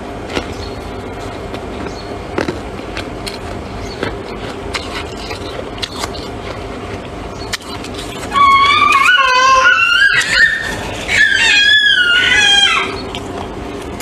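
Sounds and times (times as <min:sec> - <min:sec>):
frost crunching crackles: 0:00.2 - 0:09.0.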